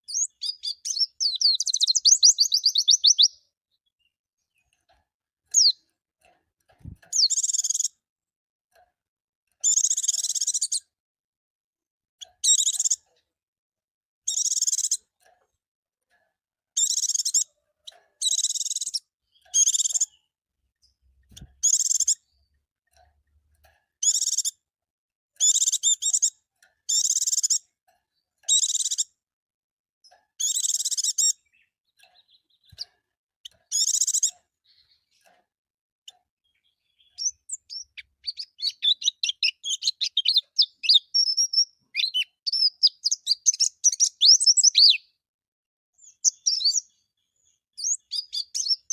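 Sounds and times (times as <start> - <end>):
bird singing warbled phrases: 0.0 - 4.8, 5.5 - 5.8, 6.8 - 8.0, 9.6 - 10.9, 12.2 - 13.0, 14.3 - 15.1, 16.8 - 17.6, 18.2 - 22.6, 24.0 - 24.5, 25.4 - 26.3, 28.5 - 29.1, 30.4 - 35.3, 36.1 - 45.2, 46.0 - 48.9
fast bird twittering: 0.1 - 3.4, 5.5 - 5.8, 37.0 - 45.0, 46.2 - 46.9, 47.8 - 48.9.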